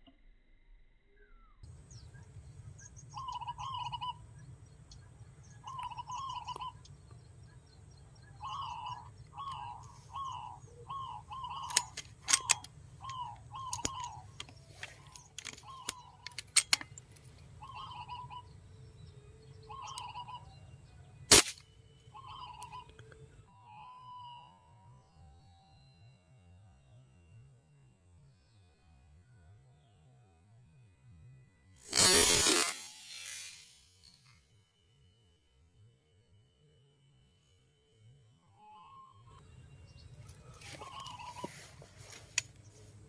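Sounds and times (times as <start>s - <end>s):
sharp clicks: 11.4s - 17.4s, 21.3s - 21.7s
loud sharp crack: 21.3s - 21.7s, 31.9s - 33.8s
bird rough call: 40.4s - 42.4s.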